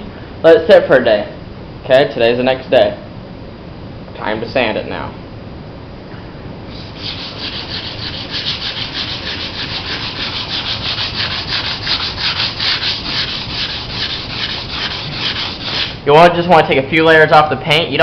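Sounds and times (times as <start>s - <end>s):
sandpaper scraping fiberglass: 6.7s - 16.0s.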